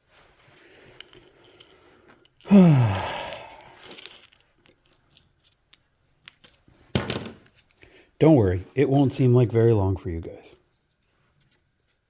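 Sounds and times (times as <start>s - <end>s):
man sighing: 2.5s - 4.0s.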